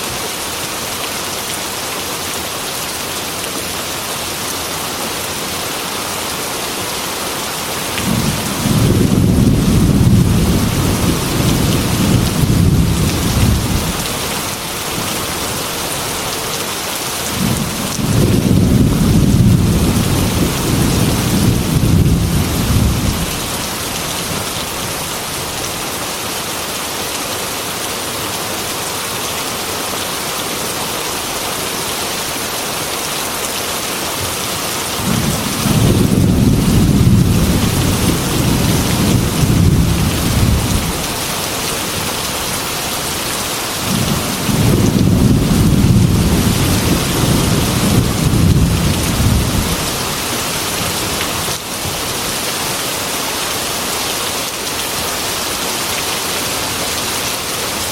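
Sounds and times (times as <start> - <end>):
heavy rain falling: 0.0 - 57.9
thunder rumbling: 8.0 - 14.1, 17.3 - 24.5, 35.0 - 41.2, 43.8 - 50.0.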